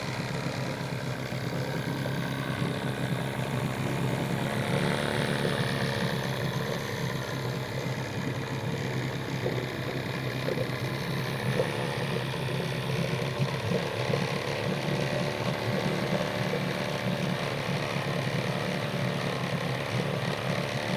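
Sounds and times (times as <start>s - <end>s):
outboard motor running: 0.0s - 20.9s.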